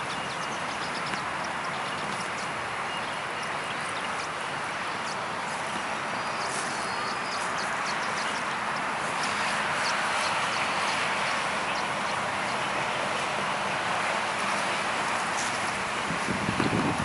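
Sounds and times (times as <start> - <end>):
small birds chirping: 0.0 - 17.0
steady rushing noise: 0.0 - 17.0.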